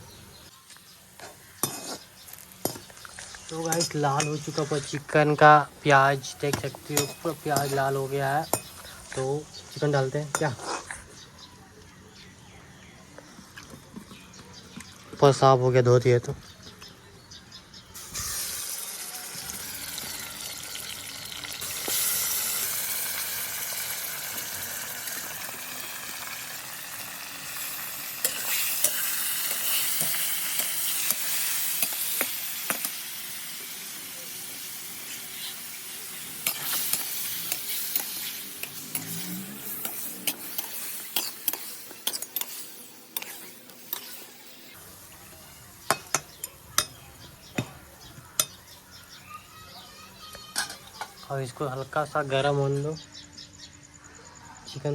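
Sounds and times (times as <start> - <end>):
chicken sizzling in hot oil: 0.8 - 9.1, 17.9 - 47.6
spatula scraping a pan: 1.2 - 2.8, 10.3 - 11.1, 27.6 - 32.2, 36.4 - 44.5.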